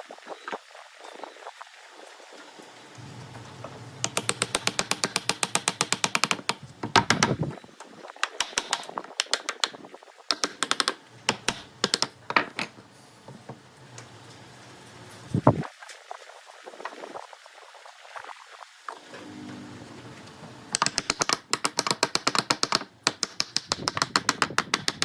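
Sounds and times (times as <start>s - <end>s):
rapid even clicks: 4.0s - 7.6s, 8.2s - 12.2s, 20.8s - 25.0s.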